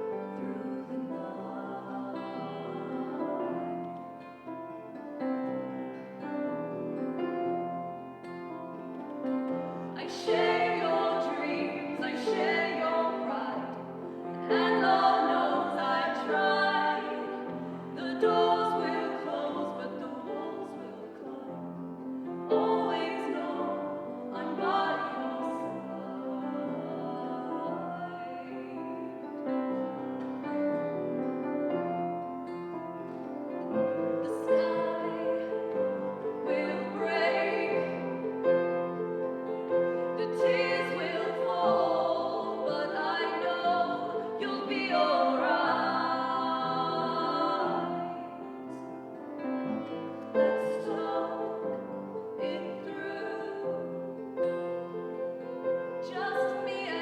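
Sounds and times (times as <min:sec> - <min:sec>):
slow song sung live: 0:09.4 - 0:29.7, 0:33.9 - 0:49.6, 0:50.3 - 0:57.0.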